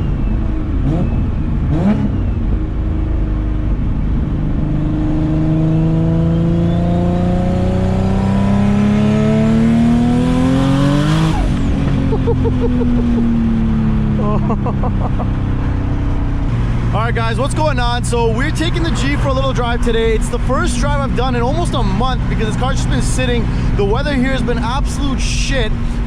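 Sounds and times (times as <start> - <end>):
car engine accelerating hard: 0.0 - 26.0.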